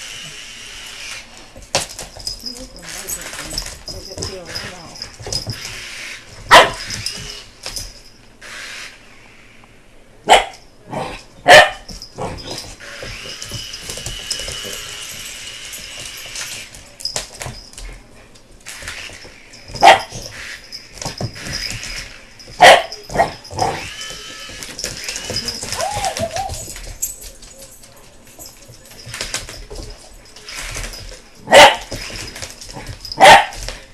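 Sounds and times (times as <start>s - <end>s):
puppy barking: 6.5s - 6.9s, 10.3s - 10.6s, 11.4s - 11.9s, 19.8s - 20.2s, 22.6s - 23.9s, 31.5s - 31.9s, 33.2s - 33.6s
dog whining: 22.6s - 27.1s.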